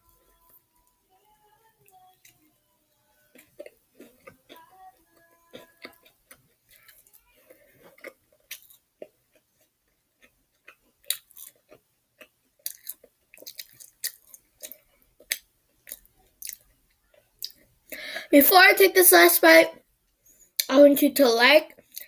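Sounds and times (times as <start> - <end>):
person chewing crunchy food: 3.3 - 17.6, 21.8 - 22.0
wet mouth clicks: 12.7 - 16.6.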